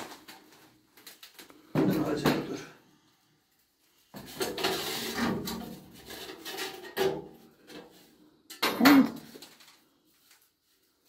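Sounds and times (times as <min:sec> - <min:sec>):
sheet metal scraping and sliding: 0:04.2 - 0:07.2.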